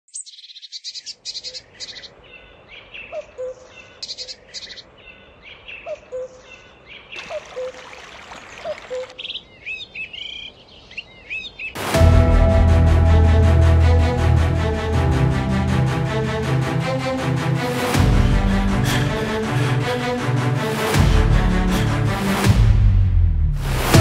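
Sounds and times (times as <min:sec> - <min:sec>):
birds singing and calling: 0:00.1 - 0:11.8
music with heavy bass: 0:11.8 - 0:24.0.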